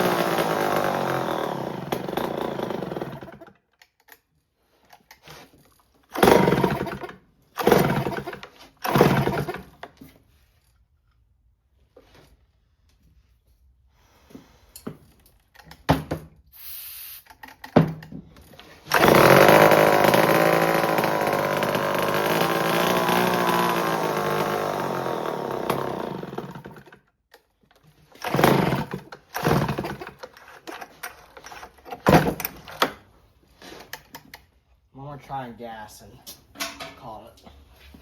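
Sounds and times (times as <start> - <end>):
chainsaw engine running: 0.0 - 3.4, 6.2 - 9.6, 18.9 - 26.9, 28.2 - 30.0
chainsaw starter cord pulls: 0.0 - 4.2, 6.0 - 9.9, 18.5 - 33.0.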